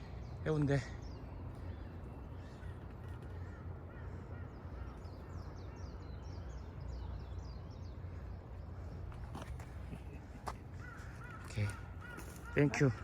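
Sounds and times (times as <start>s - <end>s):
birds chirping: 0.0s - 13.0s
repeated arching bird call: 10.8s - 13.0s.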